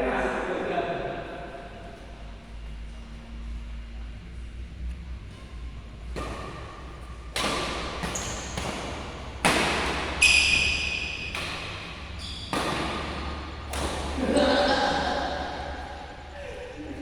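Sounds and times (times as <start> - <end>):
rackets hitting shuttlecock: 5.3 - 16.2
high squeal: 8.0 - 8.6, 10.2 - 11.4, 12.0 - 12.9
short squeaks: 8.0 - 8.6, 10.2 - 11.4, 12.1 - 12.8.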